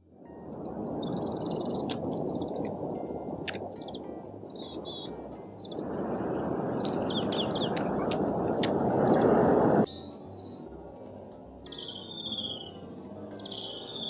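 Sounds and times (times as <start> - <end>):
strong gusting wind on microphone: 0.1 - 9.9
songbirds chirping: 0.2 - 14.0
high descending bird calls: 1.0 - 2.7, 3.7 - 14.0.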